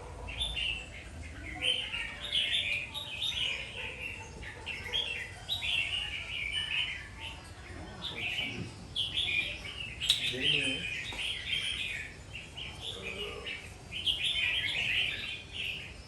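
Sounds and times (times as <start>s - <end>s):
bird singing warbled phrases: 0.0s - 16.0s.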